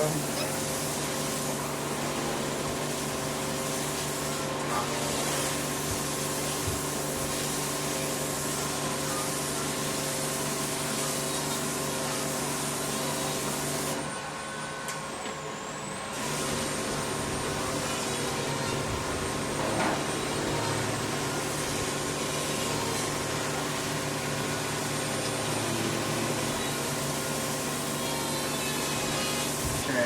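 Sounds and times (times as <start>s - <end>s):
motor humming: 16.1s - 30.0s.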